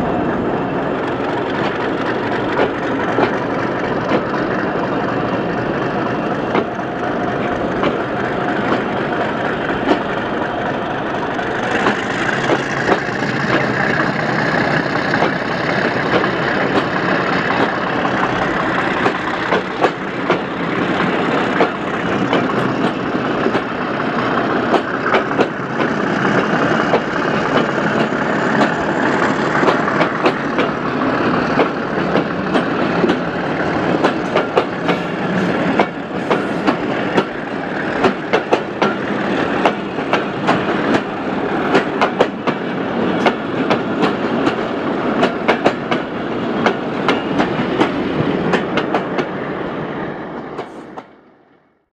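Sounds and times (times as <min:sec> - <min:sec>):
train coaches rumbling past: 0:00.0 - 0:51.7
wheels clicking over rail joints: 0:01.0 - 0:05.9, 0:24.6 - 0:28.8, 0:29.6 - 0:49.3.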